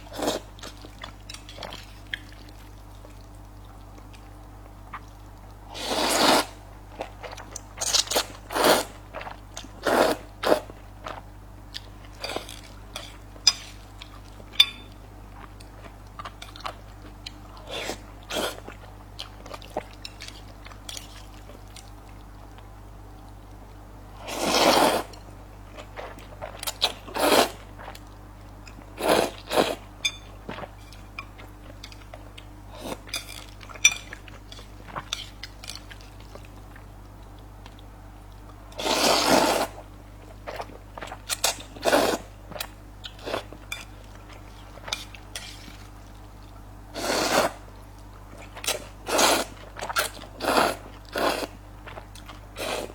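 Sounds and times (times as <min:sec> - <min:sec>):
wet chewing of noodles: 0:00.0 - 0:52.9
noodles being slurped: 0:05.7 - 0:06.6, 0:24.2 - 0:25.2, 0:26.8 - 0:27.7, 0:38.8 - 0:39.8, 0:47.0 - 0:47.6, 0:48.6 - 0:51.6.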